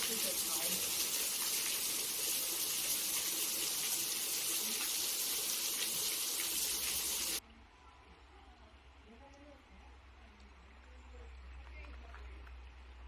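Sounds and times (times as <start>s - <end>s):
fountain water jets spraying: 0.0s - 7.4s.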